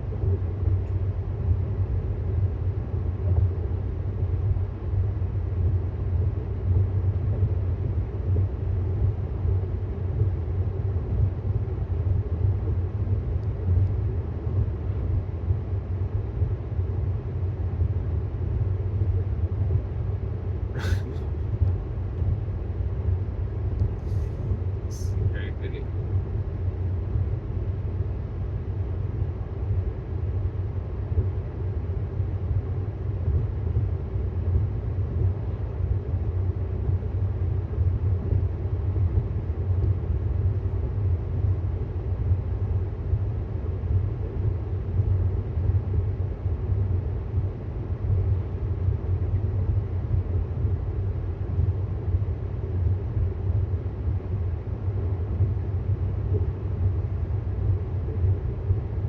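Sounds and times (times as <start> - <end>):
road and tyre rumble in car: 0.1 - 27.0.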